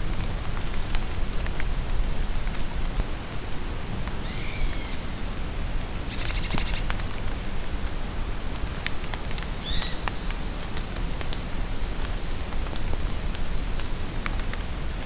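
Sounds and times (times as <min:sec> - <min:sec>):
steady rain: 0:00.0 - 0:15.0
forest birds singing: 0:03.0 - 0:05.3, 0:06.1 - 0:07.4, 0:09.4 - 0:10.6.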